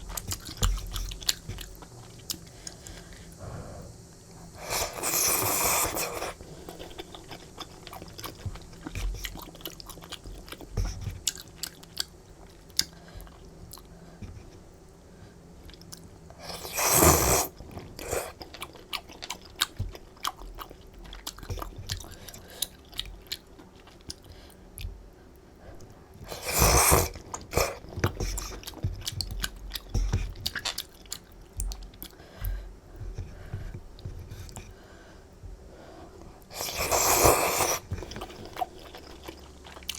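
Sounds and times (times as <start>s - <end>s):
wet chewing mouth sounds: 0.0s - 14.7s, 15.6s - 34.8s, 36.2s - 39.9s
noodle slurps: 4.6s - 10.2s, 16.4s - 18.4s, 26.2s - 28.7s, 36.5s - 39.9s.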